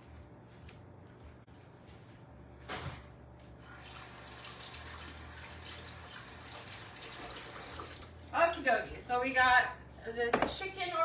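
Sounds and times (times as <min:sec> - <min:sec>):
sink tap running: 0:03.7 - 0:08.1.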